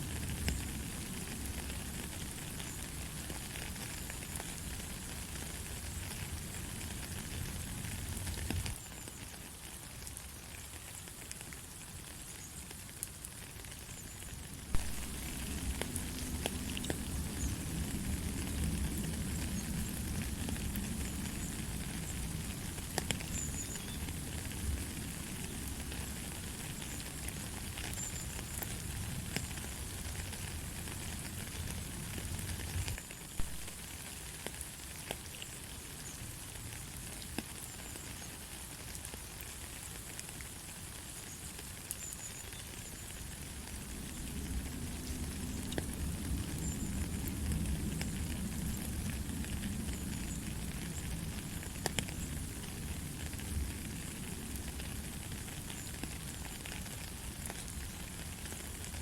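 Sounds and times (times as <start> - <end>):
light steady rain: 0.0 - 59.0
sharp drip ticks: 14.8 - 24.8.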